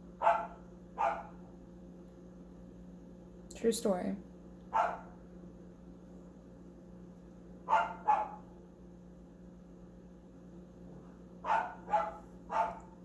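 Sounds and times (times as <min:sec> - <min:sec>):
dog barking: 0:00.2 - 0:01.4, 0:04.7 - 0:05.2, 0:07.7 - 0:08.5, 0:11.4 - 0:13.0.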